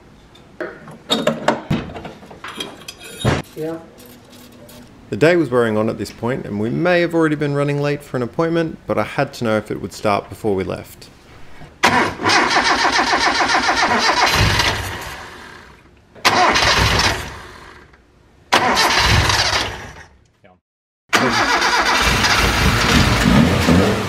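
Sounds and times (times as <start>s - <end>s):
car engine starting and running: 11.8s - 17.9s, 18.5s - 20.1s, 21.1s - 24.0s.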